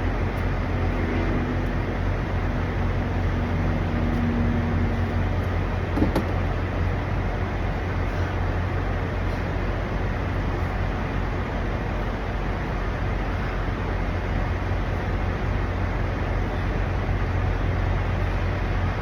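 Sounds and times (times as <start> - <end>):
truck engines idling: 0.0 - 19.0
brief knock: 6.0 - 6.4.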